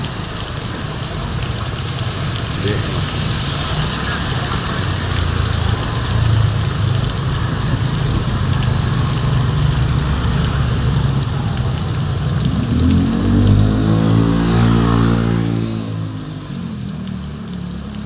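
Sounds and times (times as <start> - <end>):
heavy rain: 0.0 - 18.0
engine revving: 12.4 - 16.0.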